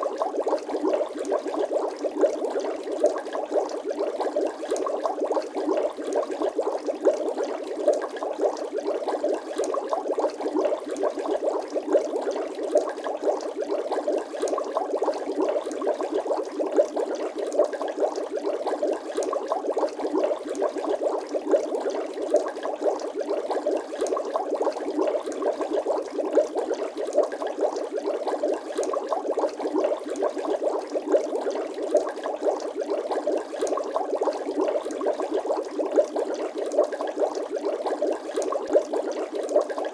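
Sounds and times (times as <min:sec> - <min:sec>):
liquid bubbling and popping: 0:00.0 - 0:39.9.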